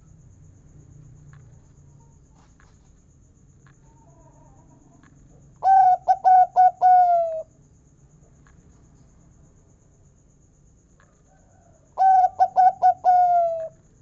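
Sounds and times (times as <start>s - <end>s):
dove cooing: 5.6s - 7.5s, 12.0s - 13.8s.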